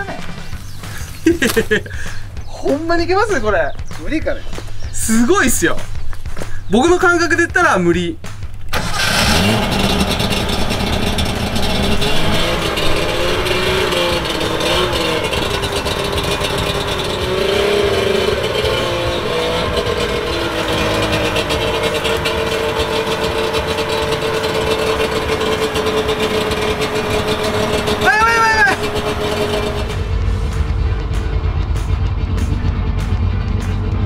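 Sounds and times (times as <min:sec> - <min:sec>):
two-stroke engine revving: 0:08.7 - 0:34.0.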